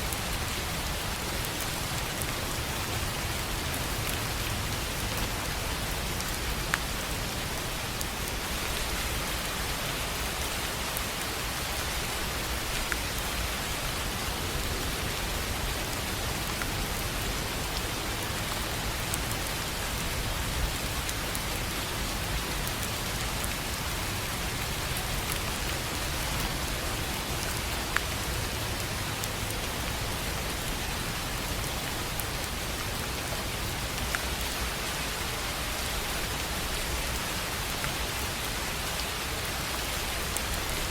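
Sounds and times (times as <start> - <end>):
rain on a tin roof: 0.0 - 40.9.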